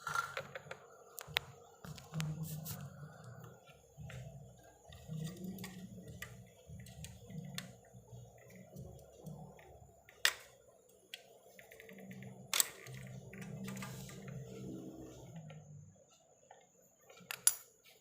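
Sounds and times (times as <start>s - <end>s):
tools clicking and tapping: 3.3s - 15.7s, 16.5s - 18.0s.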